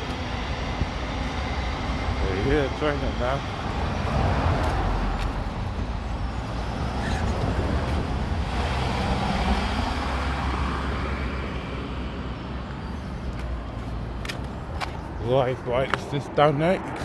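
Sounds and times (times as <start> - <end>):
vehicle passing close by: 3.5 - 12.4.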